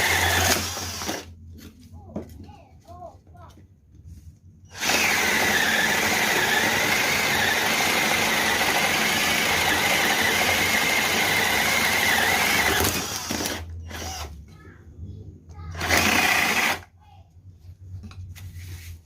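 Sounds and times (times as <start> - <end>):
cordless drill motor whine: 0.0 - 1.3, 4.7 - 14.3.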